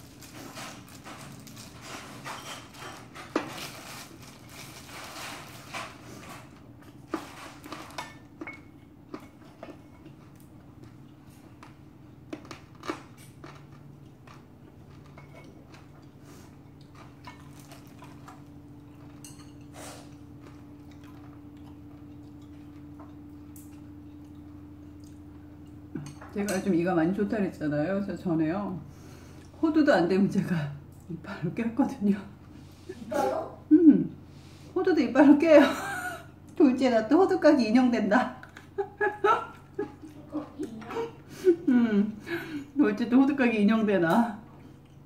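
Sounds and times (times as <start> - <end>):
chewing and crunching food: 0.0 - 26.2
low steady hum: 0.0 - 45.0
spoon and chopsticks clinking on plate: 19.1 - 19.7.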